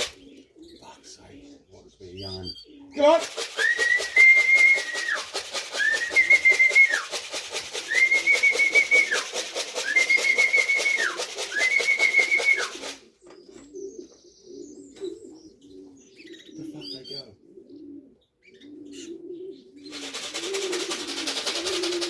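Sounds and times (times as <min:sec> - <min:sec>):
pigeons cooing: 0:00.0 - 0:22.0
fast steady rattle: 0:03.0 - 0:13.0, 0:19.9 - 0:22.0
person whistling rising calls: 0:03.5 - 0:07.2, 0:07.8 - 0:13.0.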